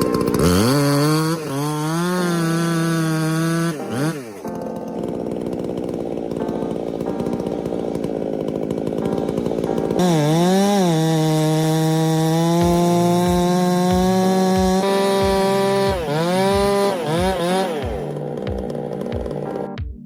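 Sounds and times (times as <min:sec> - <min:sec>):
chainsaw engine running: 0:00.0 - 0:19.8.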